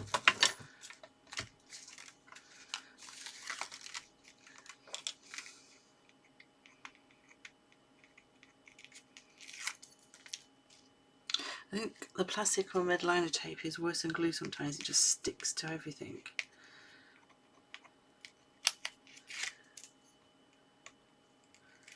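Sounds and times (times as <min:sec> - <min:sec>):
paper and plastic crinkling: 0:00.0 - 0:05.8, 0:08.0 - 0:10.9, 0:18.6 - 0:20.0.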